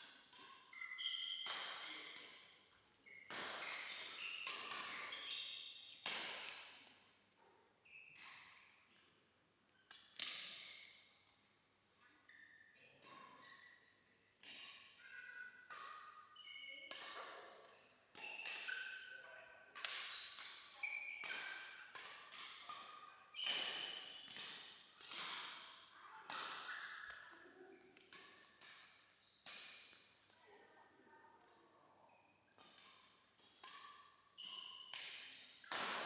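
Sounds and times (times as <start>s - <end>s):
court shoes squeaking: 0.7s - 2.2s, 3.0s - 5.9s, 22.5s - 24.5s, 26.3s - 28.4s, 32.2s - 36.0s
rackets hitting shuttlecock: 23.4s - 25.6s, 34.9s - 36.0s.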